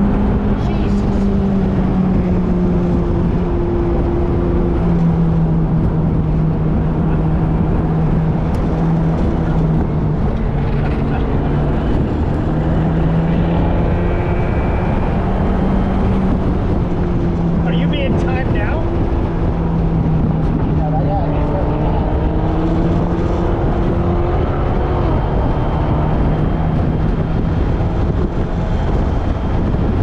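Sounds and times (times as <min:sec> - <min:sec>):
car engine drone under load: 0:00.0 - 0:30.0
road and wind noise: 0:00.0 - 0:30.0.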